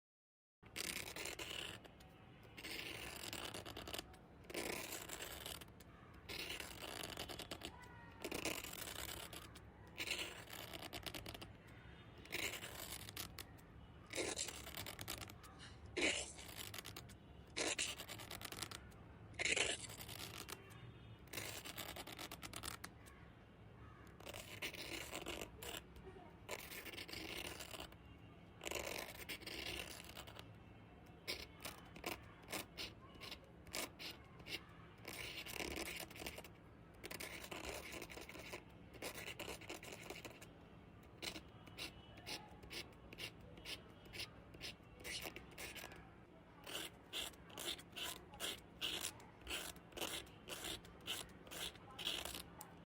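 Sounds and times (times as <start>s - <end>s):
pen scratching on paper: 0.7s - 23.2s, 23.8s - 52.9s.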